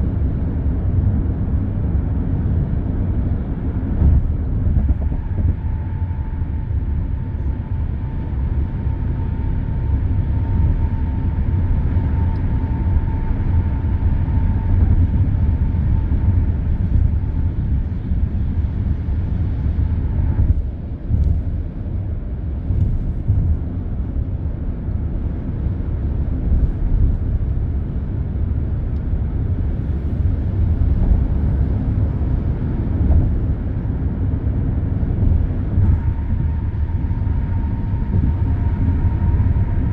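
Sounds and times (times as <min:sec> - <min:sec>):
expressway traffic rumble: 0:00.0 - 0:39.9.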